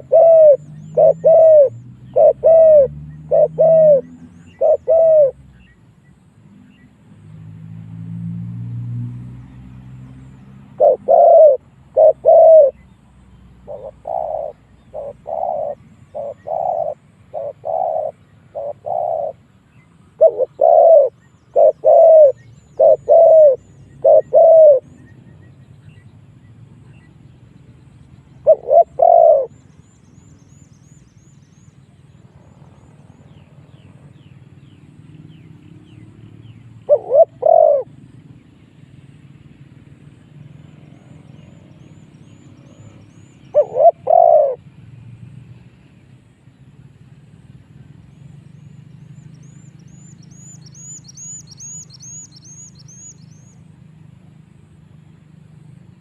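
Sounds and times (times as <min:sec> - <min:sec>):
dove cooing: 0:00.0 - 0:05.4, 0:10.6 - 0:12.8, 0:13.6 - 0:25.1, 0:28.4 - 0:29.6, 0:36.8 - 0:38.3, 0:40.6 - 0:44.8.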